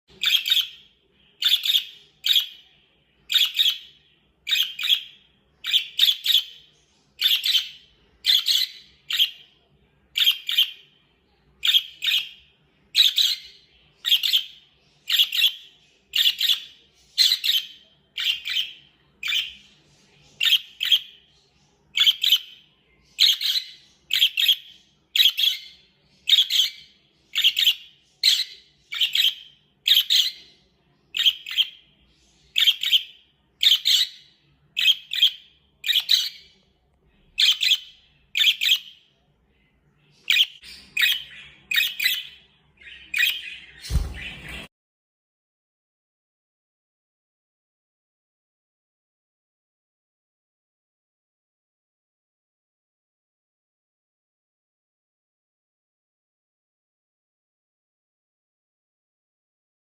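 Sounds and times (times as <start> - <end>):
parakeet high chirps: 0.1 - 44.7.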